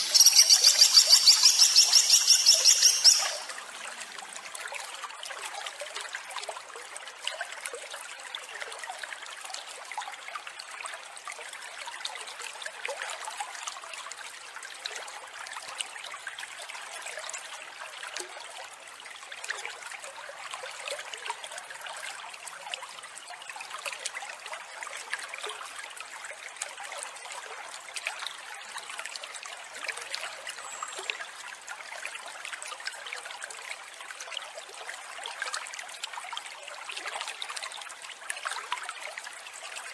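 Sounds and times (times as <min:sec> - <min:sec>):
short bird calls: 0:00.0 - 0:03.5
water trickling: 0:00.0 - 0:39.9.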